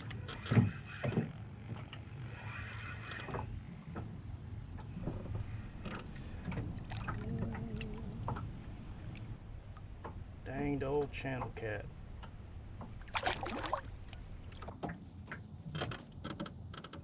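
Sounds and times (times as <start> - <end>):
low rumble: 5.0 - 14.7.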